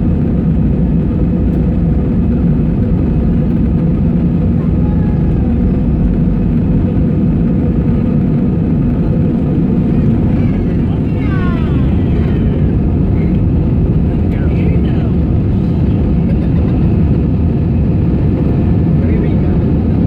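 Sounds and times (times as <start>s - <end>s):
jet engine rumble in cabin: 0.0s - 20.0s.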